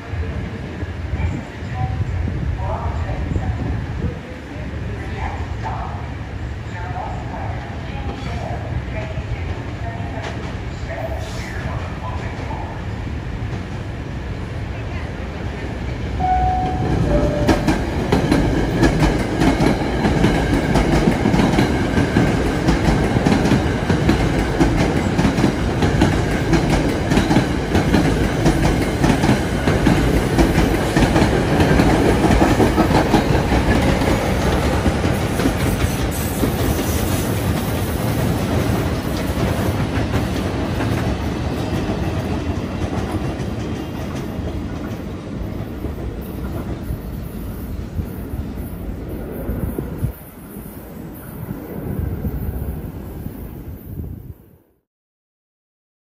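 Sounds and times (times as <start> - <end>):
train rumbling past on rails: 0.0 - 54.8
two brief descending tones: 16.2 - 17.9.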